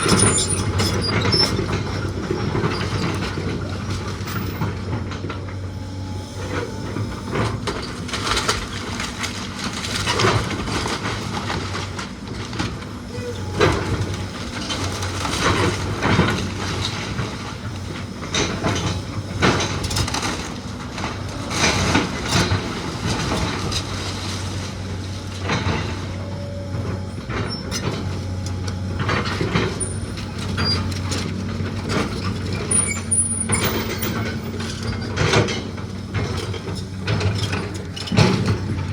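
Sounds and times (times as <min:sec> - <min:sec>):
engine running: 0:00.0 - 0:38.9
wood cracking and crashing: 0:07.6 - 0:13.0, 0:19.0 - 0:26.2.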